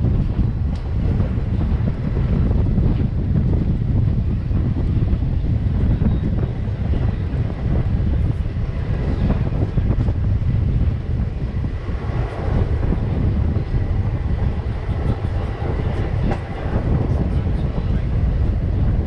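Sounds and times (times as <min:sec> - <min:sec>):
passenger train rumbling: 0:00.0 - 0:19.0
wind buffeting microphone: 0:00.0 - 0:19.0.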